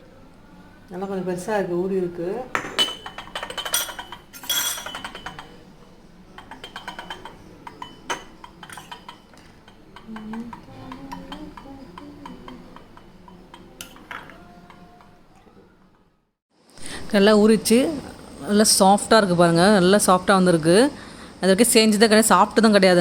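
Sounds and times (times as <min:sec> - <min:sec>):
cutlery and dishes clinking: 0:02.6 - 0:05.6, 0:06.3 - 0:16.1.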